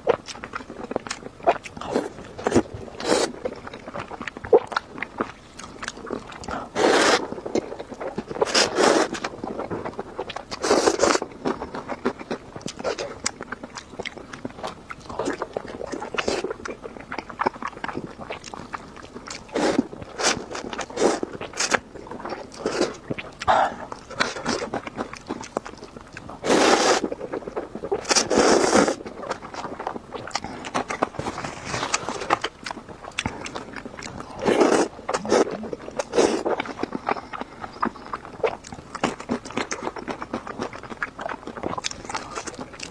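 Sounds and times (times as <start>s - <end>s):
chewing and crunching: 0.0s - 42.9s
loud slurps: 6.6s - 7.3s, 8.4s - 9.2s, 10.6s - 11.2s, 19.5s - 21.8s, 26.4s - 27.1s, 28.0s - 29.0s, 34.3s - 36.6s.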